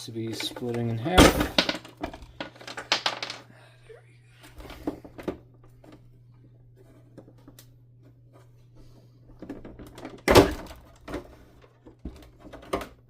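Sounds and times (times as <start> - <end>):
loud hollow plastic thunk: 1.2 - 2.2.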